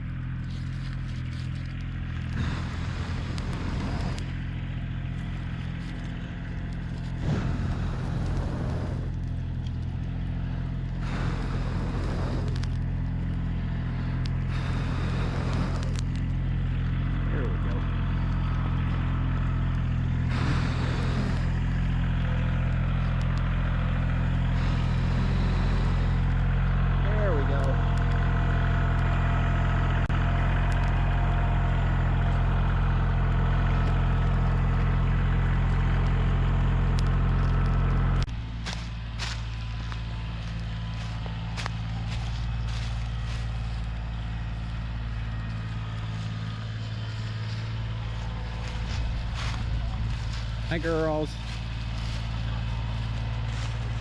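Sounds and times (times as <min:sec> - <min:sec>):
heavy equipment engine running: 0:00.0 - 0:54.0
burst of noise: 0:02.3 - 0:04.6, 0:05.4 - 0:18.9, 0:20.2 - 0:23.4, 0:24.1 - 0:26.6, 0:47.2 - 0:54.0.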